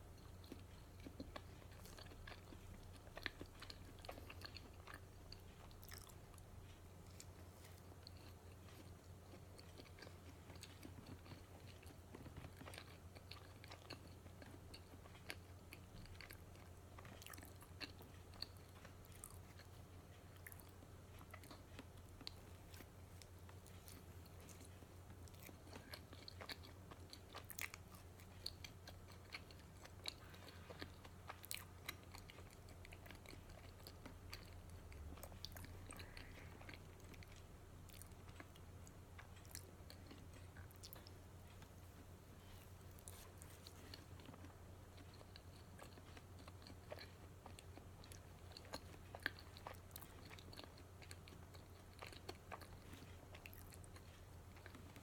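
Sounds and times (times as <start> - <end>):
person chewing and crunching: 0.0 - 55.0
steady low hum: 0.0 - 55.0.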